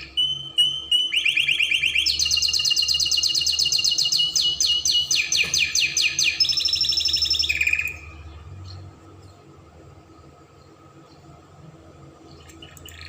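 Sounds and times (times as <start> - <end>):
canary trilling: 0.0 - 8.8.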